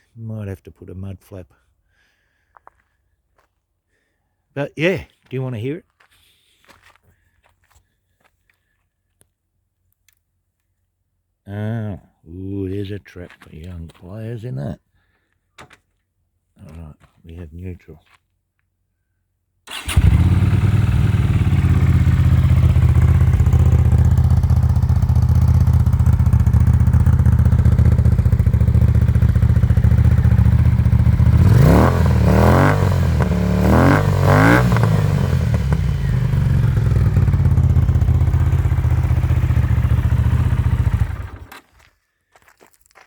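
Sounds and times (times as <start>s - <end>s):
motorcycle engine idling and revving: 19.7s - 41.6s.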